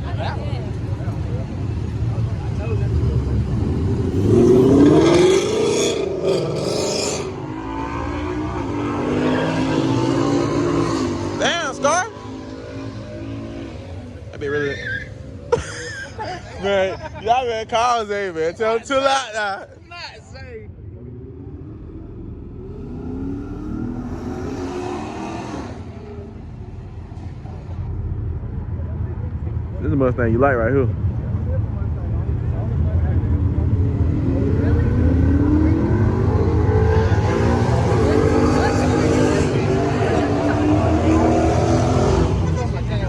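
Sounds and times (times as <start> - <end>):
car engine revving: 1.9 - 14.3, 20.2 - 30.4, 32.2 - 43.0.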